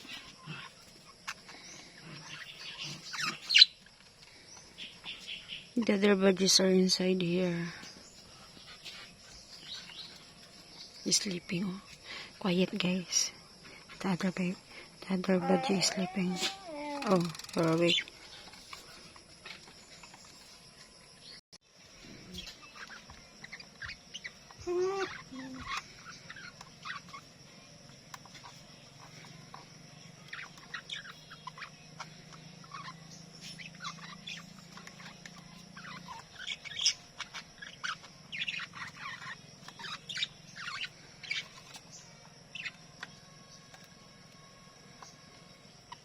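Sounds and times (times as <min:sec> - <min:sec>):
budgerigars chirping: 0:02.2 - 0:03.8, 0:22.4 - 0:27.3, 0:30.2 - 0:41.8.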